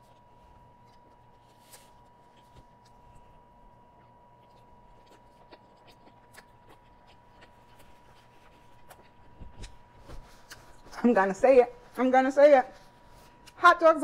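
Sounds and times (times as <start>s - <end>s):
faint chewing: 0.0s - 11.0s.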